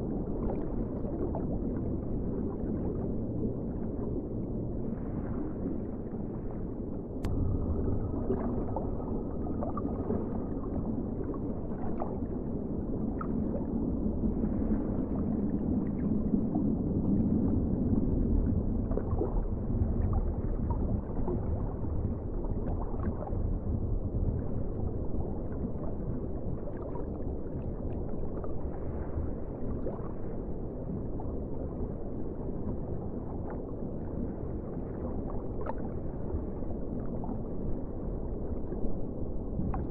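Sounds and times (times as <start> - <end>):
underwater rumble of moving water: 0.0 - 39.9
faint bubbling clicks: 39.6 - 39.9.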